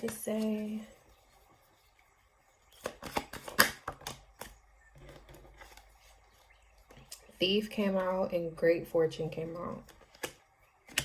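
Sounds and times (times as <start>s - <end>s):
cards snapping and tapping: 2.8s - 4.6s, 9.9s - 11.0s.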